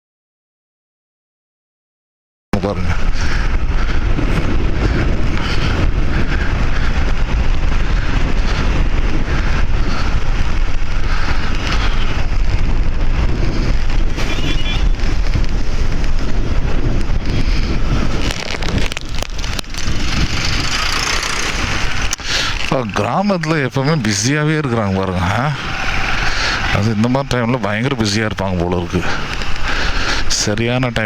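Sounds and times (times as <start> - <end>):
wind buffeting microphone: 2.6 - 31.0
motorcycle engine running: 3.5 - 23.2, 25.1 - 27.2.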